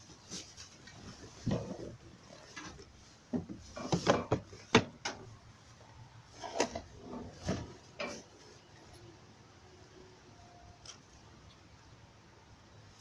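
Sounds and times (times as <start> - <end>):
hard objects knocking and clattering: 3.3 - 5.2.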